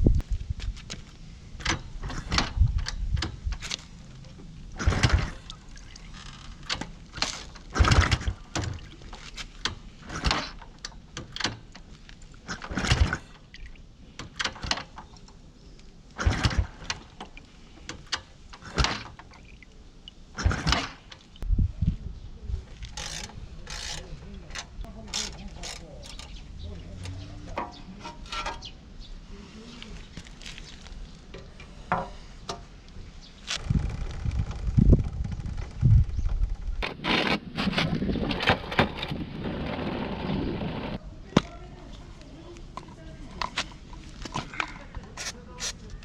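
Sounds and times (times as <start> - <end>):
tools knocking and scraping: 27.0 - 28.7, 31.3 - 32.7.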